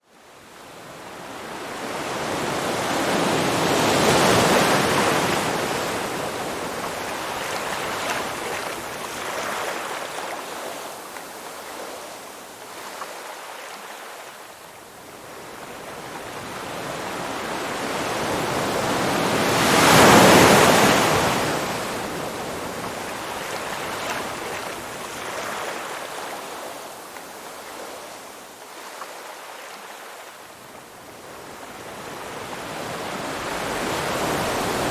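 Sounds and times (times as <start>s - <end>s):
waves breaking: 2.1s - 14.4s, 16.6s - 30.4s, 31.4s - 34.9s
ocean waves washing in: 31.4s - 34.9s.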